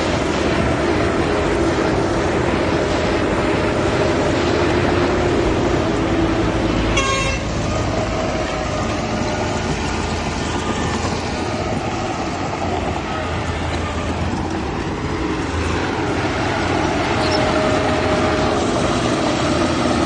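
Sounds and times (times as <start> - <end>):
heavy diesel machinery running: 0.0 - 20.0
high-pitched horn toot: 6.9 - 7.6.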